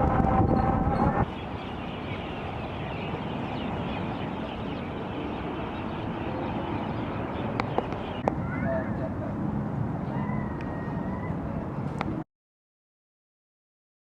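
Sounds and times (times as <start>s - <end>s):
birds chirping in chorus: 1.2s - 9.2s.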